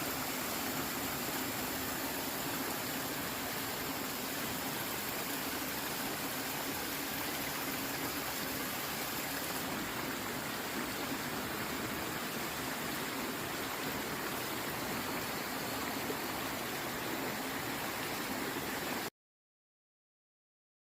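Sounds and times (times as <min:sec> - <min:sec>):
stream flowing: 0:00.0 - 0:19.1.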